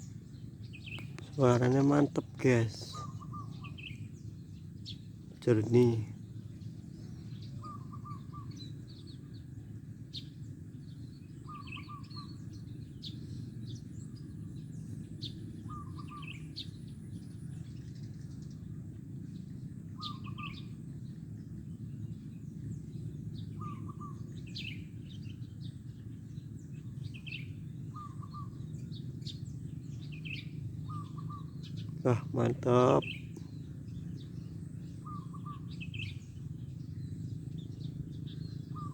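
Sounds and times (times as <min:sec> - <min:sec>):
small birds chirping: 0:00.0 - 0:09.5, 0:19.4 - 0:38.9
steady low hum: 0:25.0 - 0:38.9
dove cooing: 0:30.9 - 0:33.4.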